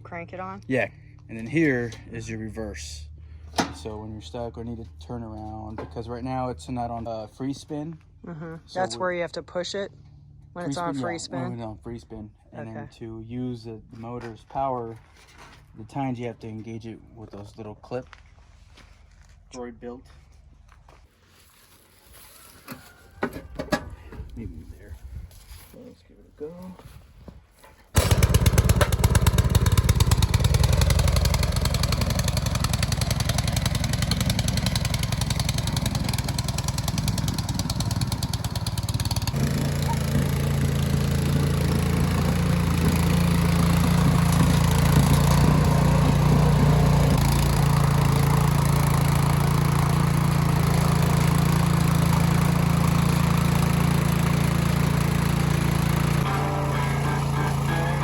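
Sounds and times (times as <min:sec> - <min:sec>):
garden tiller engine running: 0:03.1 - 0:07.1, 0:27.9 - 0:58.0.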